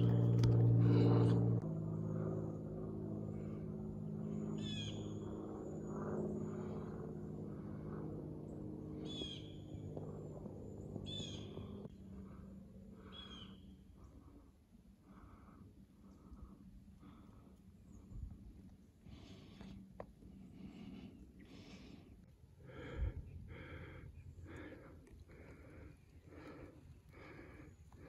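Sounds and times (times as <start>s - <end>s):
low mechanical hum: 0.0s - 28.0s
bird calling: 13.0s - 13.8s.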